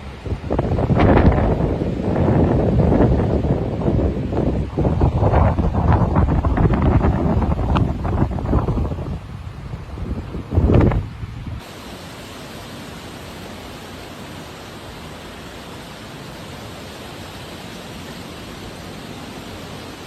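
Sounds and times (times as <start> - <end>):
wind buffeting microphone: 0.0 - 11.7
steady rushing hiss: 0.0 - 20.0.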